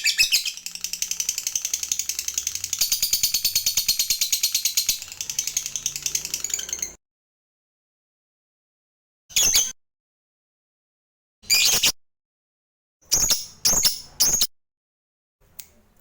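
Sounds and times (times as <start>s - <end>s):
lovebird rattling trill: 0.0s - 7.0s.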